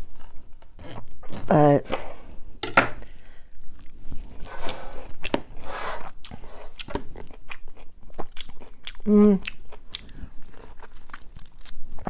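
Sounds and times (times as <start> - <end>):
person chewing crunchy food: 3.0 - 12.0.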